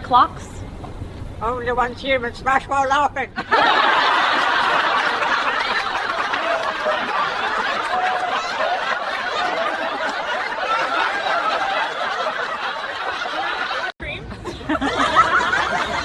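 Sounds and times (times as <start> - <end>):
people laughing: 3.4 - 16.0.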